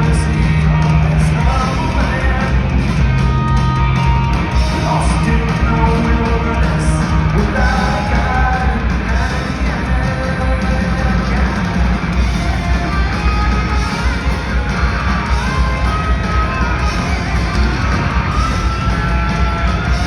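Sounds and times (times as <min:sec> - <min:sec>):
bass: 0:00.0 - 0:20.0
distorted electric guitars: 0:00.0 - 0:20.0
drums: 0:00.0 - 0:20.0
singer's held vocals: 0:04.6 - 0:11.9.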